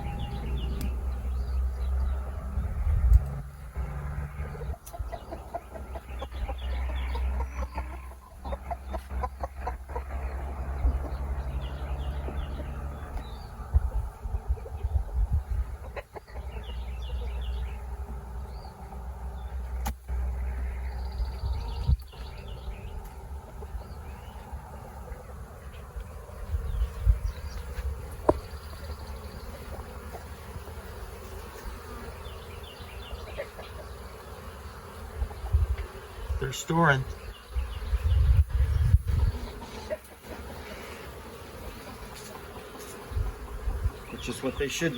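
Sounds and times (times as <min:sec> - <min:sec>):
low rumble: 0:00.0 - 0:04.6
single bee droning close by: 0:00.0 - 0:08.3, 0:10.0 - 0:44.9
honey bees buzzing: 0:00.0 - 0:44.9.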